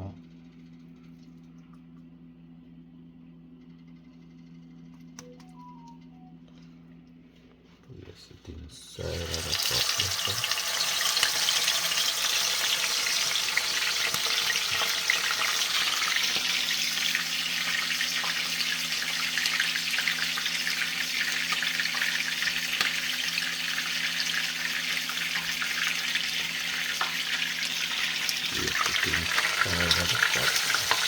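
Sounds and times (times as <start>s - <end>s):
fish frying in hot oil: 9.1s - 31.0s.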